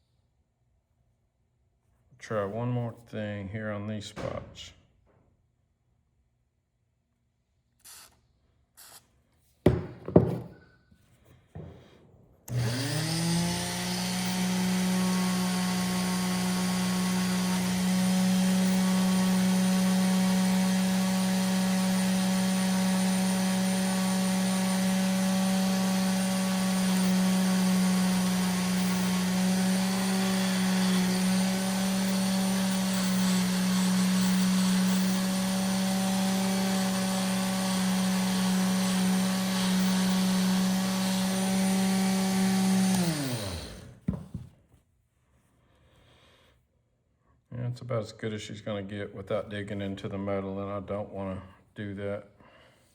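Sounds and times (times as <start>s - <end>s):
electric rotary tool running: 12.5s - 44.0s.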